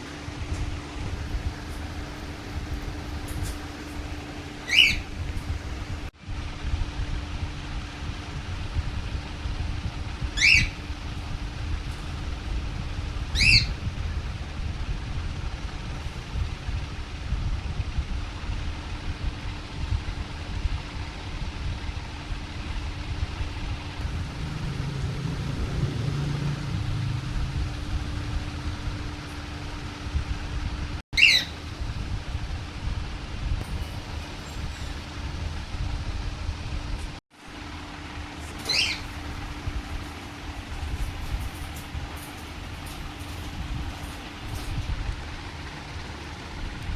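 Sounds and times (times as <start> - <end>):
steady low hum: 0.0 - 46.9
parrot squawking: 3.1 - 5.6, 10.4 - 10.9, 13.3 - 13.8, 31.2 - 31.9, 38.4 - 44.7.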